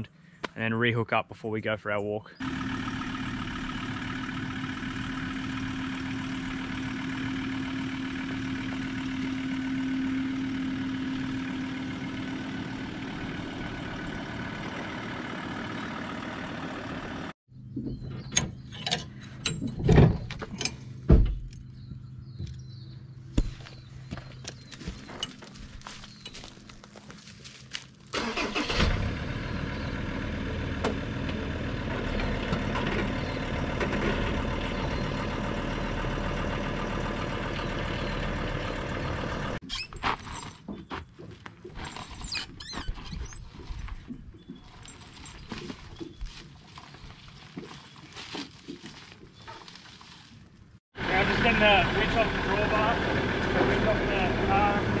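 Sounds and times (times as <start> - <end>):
engine running at low revs: 2.4 - 17.4, 28.2 - 39.6, 51.0 - 55.0
sharp clunks and knocks: 17.7 - 21.7.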